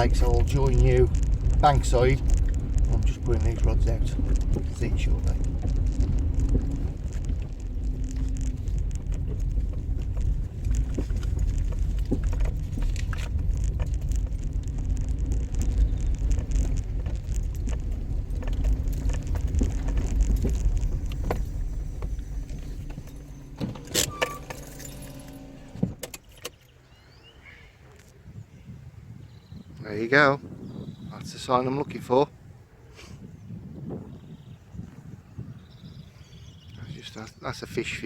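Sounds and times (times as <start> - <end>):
sharp clicks and knocks: 0.0 - 26.7
car engine and road rumble: 0.0 - 38.0.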